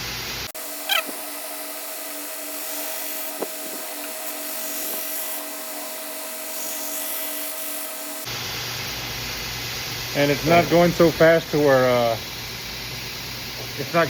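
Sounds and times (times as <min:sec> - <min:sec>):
belt grinder whining: 0:00.6 - 0:08.3.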